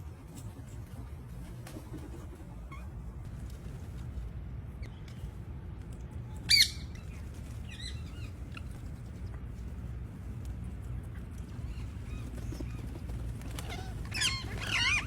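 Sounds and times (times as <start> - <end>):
low background rumble: 0.0 - 15.0
parrot squawking: 13.7 - 15.0.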